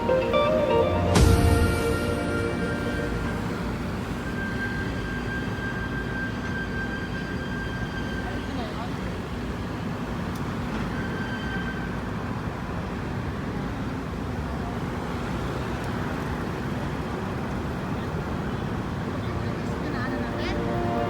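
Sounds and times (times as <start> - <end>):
thin high tone: 0.0 - 8.6, 19.3 - 21.0
engines rumbling: 0.0 - 21.0.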